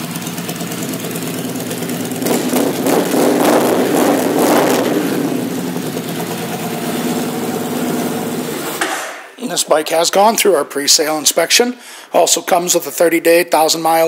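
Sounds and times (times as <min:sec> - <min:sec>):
motorcycle engine idling and revving: 0:00.0 - 0:09.0.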